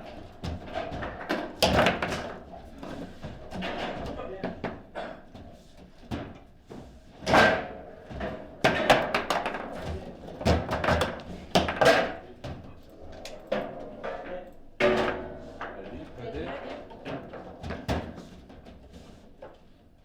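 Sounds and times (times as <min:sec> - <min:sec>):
foosball ball knocks and clacks: 0:00.0 - 0:05.0, 0:07.2 - 0:15.9.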